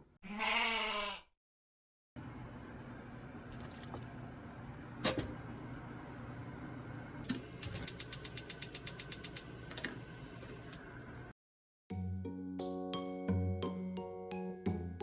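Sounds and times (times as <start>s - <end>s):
sharp clicks: 7.3s - 9.9s
mechanical ratchet clicks: 7.6s - 9.8s.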